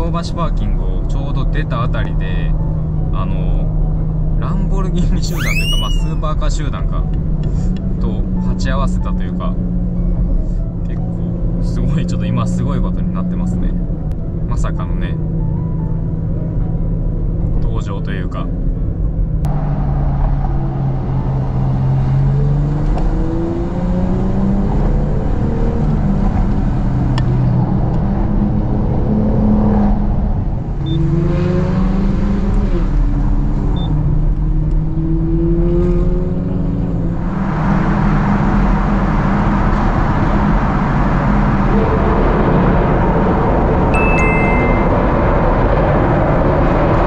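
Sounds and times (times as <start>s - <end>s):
rushing noise in tunnel: 18.6s - 47.0s
car engine accelerating: 19.4s - 47.0s.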